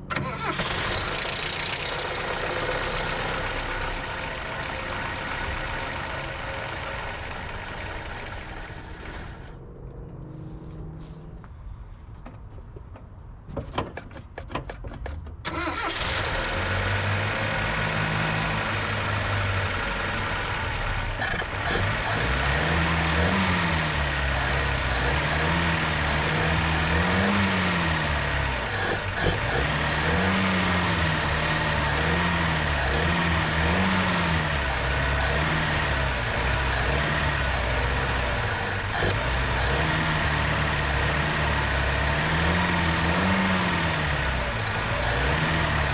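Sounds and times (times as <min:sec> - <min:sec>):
engine cranking with clicks: 0:00.0 - 0:02.1, 0:14.0 - 0:16.4, 0:21.1 - 0:22.4
engine revving: 0:00.0 - 0:11.3, 0:15.5 - 0:45.9.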